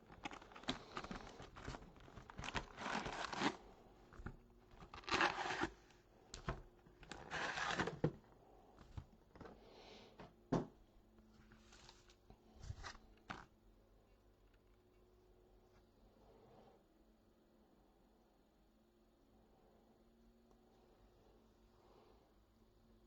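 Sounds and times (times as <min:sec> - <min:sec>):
packaging tearing: 0:00.0 - 0:08.1
packaging clicks and rustles: 0:00.0 - 0:09.6.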